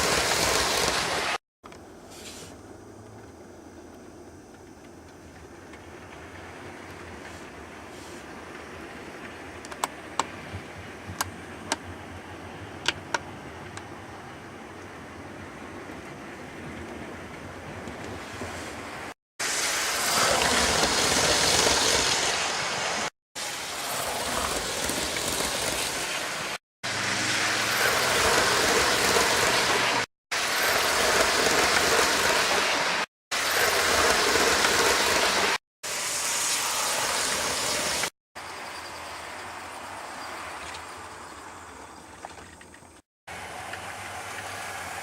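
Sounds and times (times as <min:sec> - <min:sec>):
model train running on track: 0:00.0 - 0:01.4, 0:19.4 - 0:39.4.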